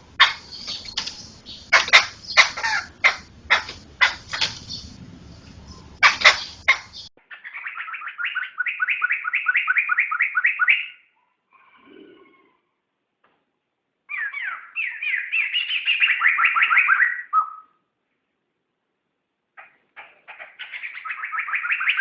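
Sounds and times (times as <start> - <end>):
laughingthrush sharp calls: 0.0 - 5.0, 5.7 - 10.9.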